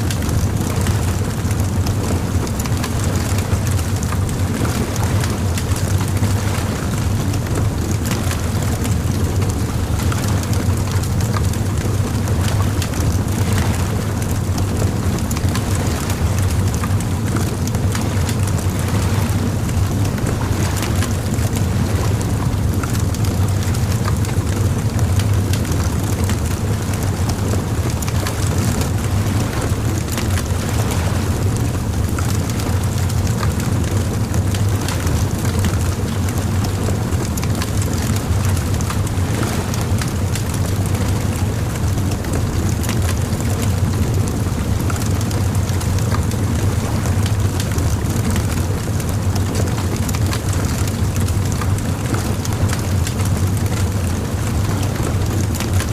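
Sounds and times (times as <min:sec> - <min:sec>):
bonfire crackling and popping: 0:32.9 - 0:46.7.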